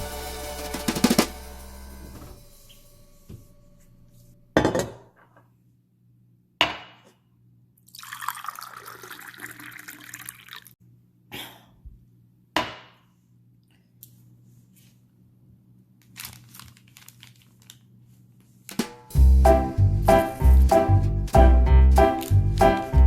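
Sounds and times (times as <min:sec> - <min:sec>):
background music: 0:00.0 - 0:03.2, 0:19.1 - 0:23.0.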